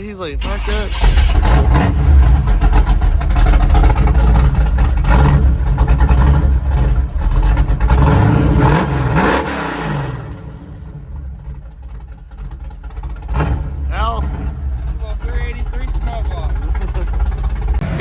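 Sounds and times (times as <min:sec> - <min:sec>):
truck engine revving: 0:00.0 - 0:18.0.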